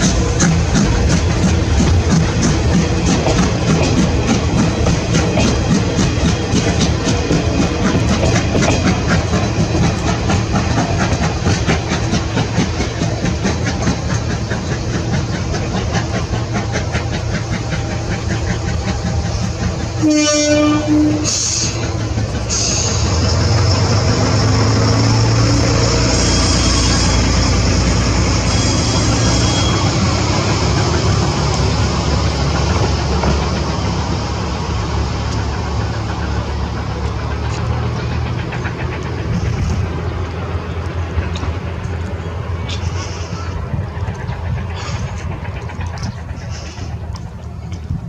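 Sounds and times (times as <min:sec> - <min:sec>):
steam hiss: 0:00.0 - 0:41.6, 0:42.5 - 0:47.7
steam train running: 0:00.0 - 0:48.0
fast clatter of clicks: 0:43.9 - 0:48.0.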